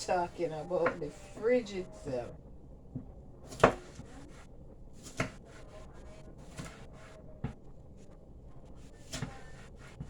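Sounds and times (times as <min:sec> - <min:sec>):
faint knife cutting sounds: 0:03.4 - 0:10.0
knife chopping on cutting board: 0:03.5 - 0:04.1, 0:05.0 - 0:05.4, 0:06.5 - 0:07.6, 0:09.0 - 0:10.0.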